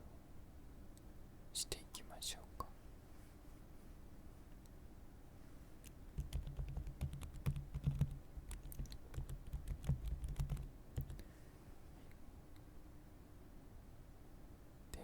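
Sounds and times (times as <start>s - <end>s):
typing on computer keyboard: 5.8s - 11.2s.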